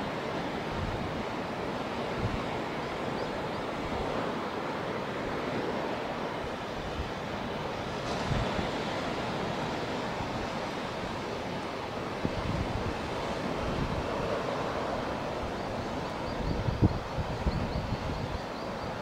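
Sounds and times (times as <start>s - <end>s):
surf breaking on beach: 3.7s - 16.9s
wind rumbling on microphone: 5.4s - 19.0s.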